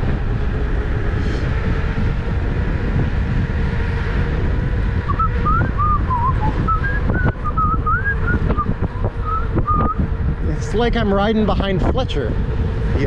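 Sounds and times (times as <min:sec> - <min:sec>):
wind rumble on microphone: 0:00.0 - 0:13.0
person whistling a tune: 0:05.1 - 0:10.0.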